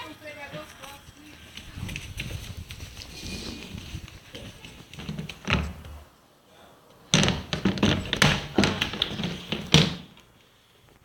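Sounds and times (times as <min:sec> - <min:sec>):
rapid knocks and rattles: 0:03.6 - 0:06.0, 0:07.1 - 0:10.2.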